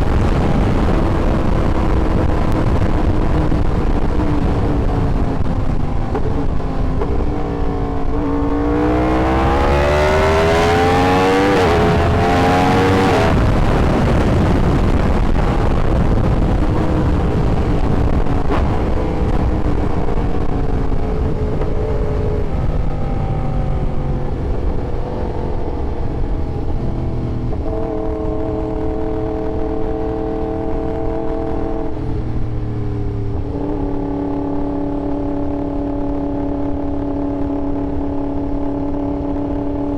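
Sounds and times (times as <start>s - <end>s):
wind rush: 0.0s - 39.9s
sport bike engine accelerating: 0.9s - 13.9s.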